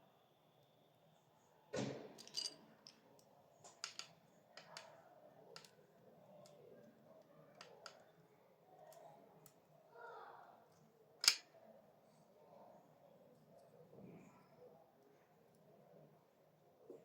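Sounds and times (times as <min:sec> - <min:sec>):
light clicks of small parts: 0:02.2 - 0:05.8, 0:06.4 - 0:08.2, 0:08.8 - 0:09.6, 0:11.2 - 0:11.5.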